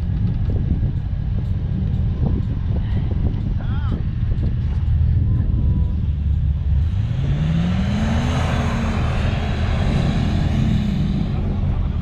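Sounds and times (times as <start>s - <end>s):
vehicle engine revving: 0.0s - 12.0s
rushing noise: 6.6s - 12.0s.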